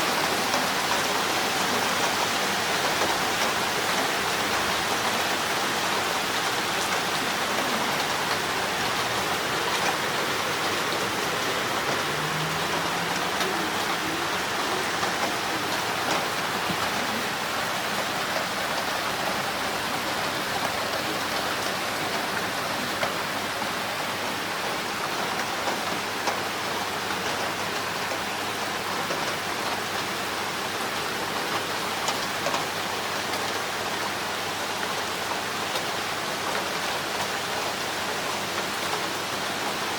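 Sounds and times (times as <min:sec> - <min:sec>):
heavy rain hiss: 0:00.0 - 0:31.3.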